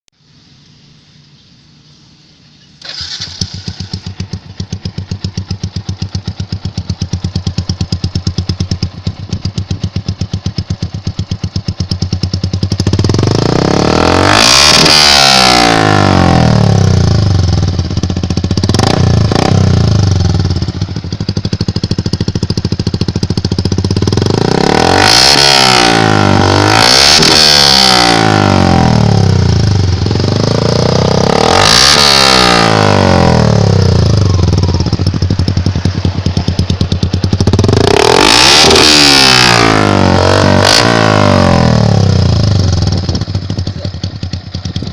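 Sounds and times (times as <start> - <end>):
motorcycle engine idling and revving: 0.2 - 44.9.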